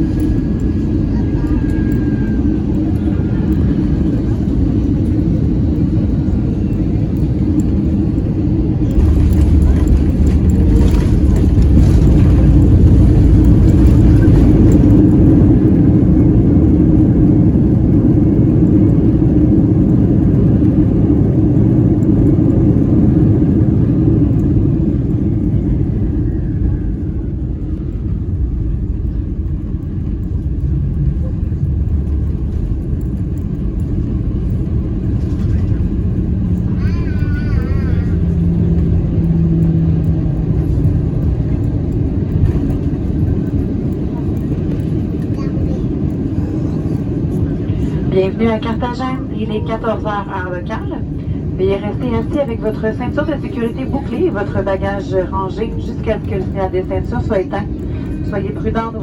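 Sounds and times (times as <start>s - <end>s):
airplane cabin rumble: 0.0s - 59.0s
jet engines whining down: 0.0s - 59.0s.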